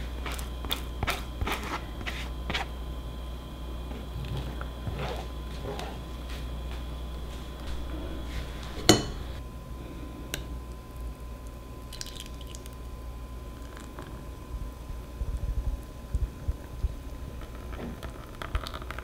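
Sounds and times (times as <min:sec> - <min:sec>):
spatula scraping batter through sieve: 0:00.0 - 0:02.7
steady low hum: 0:00.0 - 0:19.0
metallic kitchenware clink: 0:08.8 - 0:09.3.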